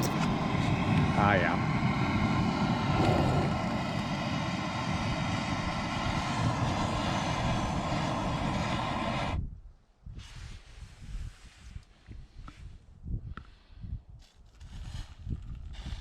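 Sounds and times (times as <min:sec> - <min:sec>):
engine-like drone: 0:00.0 - 0:09.4.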